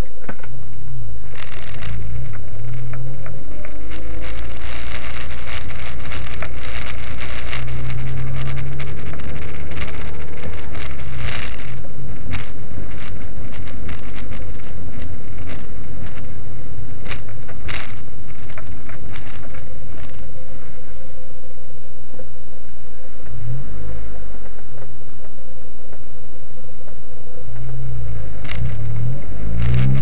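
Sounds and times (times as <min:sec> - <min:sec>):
car engine idling hum: 0:00.0 - 0:30.0
sharp crackles and clicks: 0:00.0 - 0:30.0.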